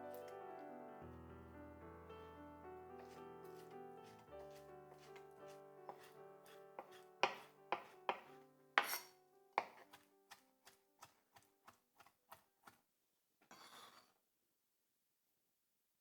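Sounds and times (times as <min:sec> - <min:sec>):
background music: 0:00.0 - 0:10.0
knife chopping on cutting board: 0:05.9 - 0:12.8.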